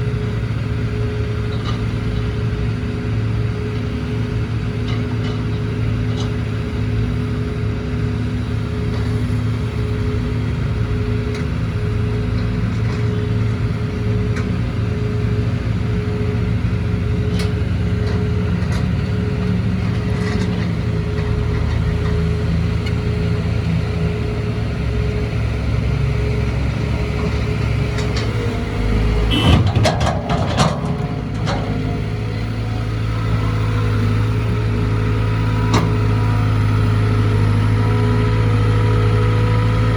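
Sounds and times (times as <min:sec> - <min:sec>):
diesel excavator engine running: 0:00.0 - 0:39.9
knocks and rattles: 0:29.4 - 0:31.9.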